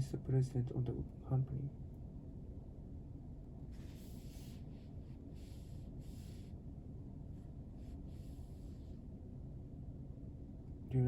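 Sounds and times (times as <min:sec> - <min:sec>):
faint low room hum: 0:00.0 - 0:11.0.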